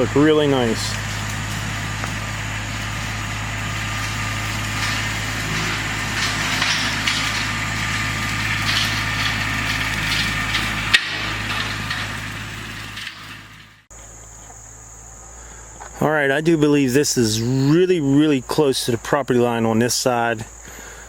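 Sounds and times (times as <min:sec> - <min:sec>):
brush crackling and snapping: 0:00.0 - 0:13.4
tractor engine running: 0:00.0 - 0:14.0.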